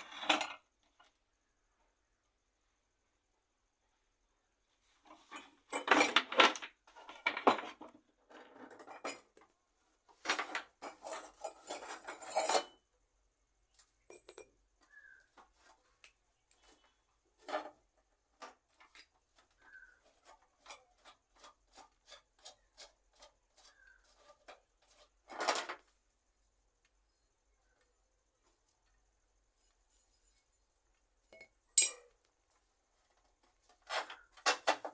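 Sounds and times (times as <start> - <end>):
metal parts clattering: 5.2 - 9.4.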